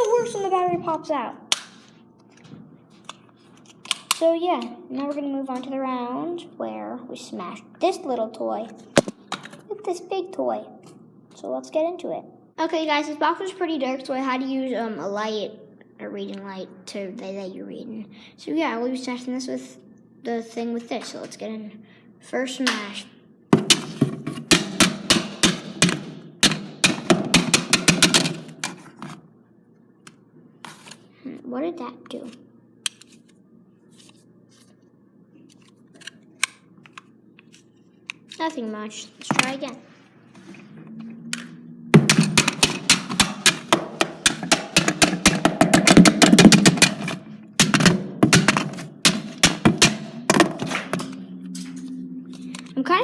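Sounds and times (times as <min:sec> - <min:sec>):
faint steady hum: 0:00.0 - 0:53.0
blows smashing plastic toy: 0:42.0 - 0:51.2.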